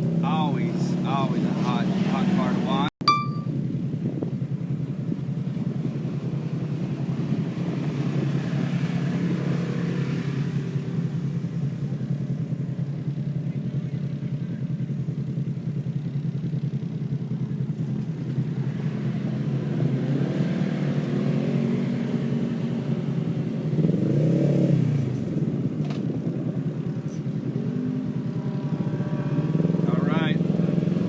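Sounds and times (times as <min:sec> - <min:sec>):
vehicle passing by: 0:00.0 - 0:02.9, 0:07.0 - 0:11.2, 0:27.0 - 0:31.0
race vehicle engines revving: 0:00.0 - 0:03.0, 0:03.8 - 0:31.0.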